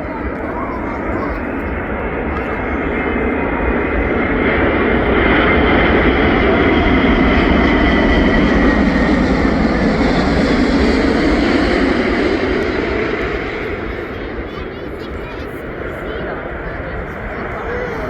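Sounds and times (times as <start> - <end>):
high jet whine: 0.0 - 18.0
jet engines roaring: 0.0 - 18.0.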